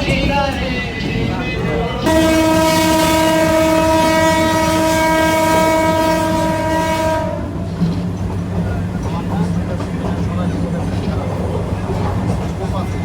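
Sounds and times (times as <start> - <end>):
moving train rumble: 0.0 - 13.0
train horn blast: 2.0 - 7.7.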